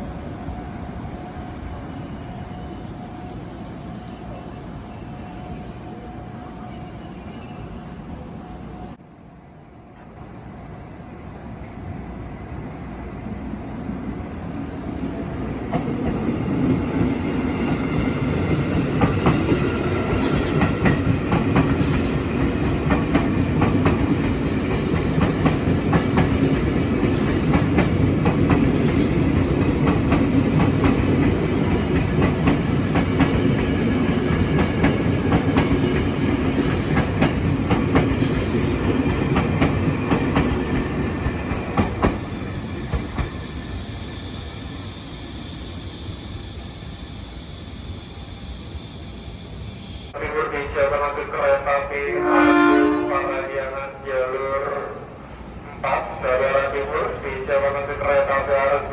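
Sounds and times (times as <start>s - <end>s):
train wheels clicking over rail joints: 18.4s - 43.6s.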